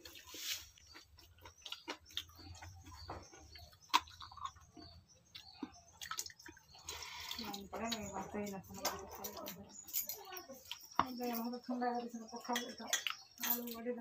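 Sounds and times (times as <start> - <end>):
chewing mouth clicks and smacks: 0.0 - 8.1, 12.9 - 13.5.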